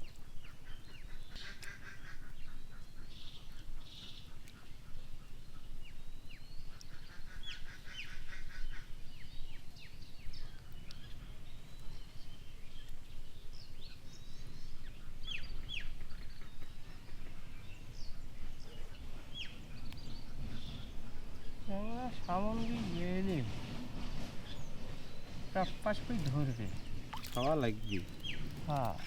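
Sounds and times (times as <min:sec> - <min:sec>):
small birds chirping: 0:00.0 - 0:29.0
bird rattling trill: 0:25.6 - 0:29.0.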